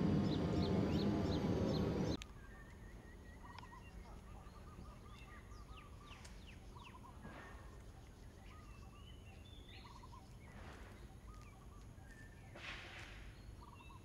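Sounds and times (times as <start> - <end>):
loud din with high chirps: 0.0 - 2.2
birds calling rolling notes: 0.0 - 14.0
downward-sweeping bird calls: 0.0 - 14.0.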